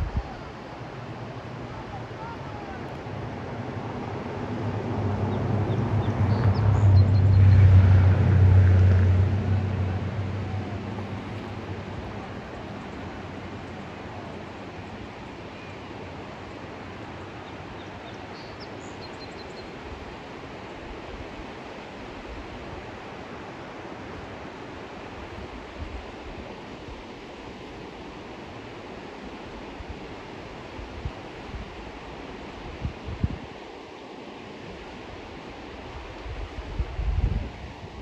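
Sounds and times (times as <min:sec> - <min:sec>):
river water rushing: 0:00.0 - 0:38.0.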